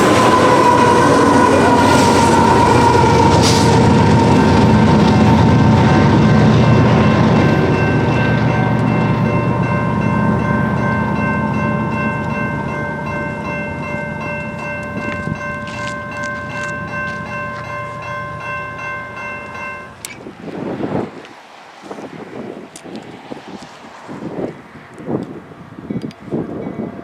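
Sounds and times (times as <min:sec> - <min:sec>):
steady chord of high tones: 0:00.0 - 0:20.1
freight train rumbling by: 0:00.0 - 0:27.0.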